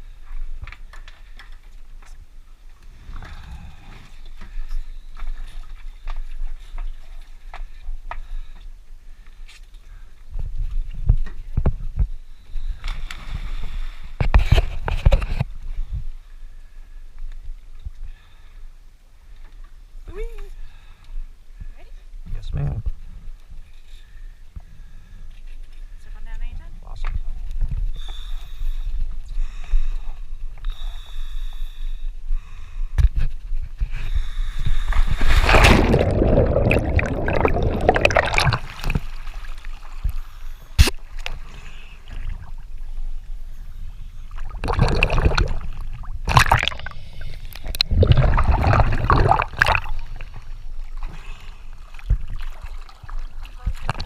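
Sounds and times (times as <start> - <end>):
water bubbling and gurgling: 35.1 - 40.2, 41.0 - 43.4, 44.2 - 51.1.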